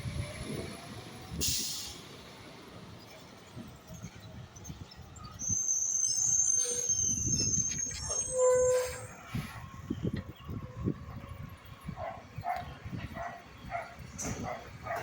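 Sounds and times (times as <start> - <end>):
garbage truck engine rumbling: 0.0 - 5.6
high metallic squeal: 5.2 - 9.6.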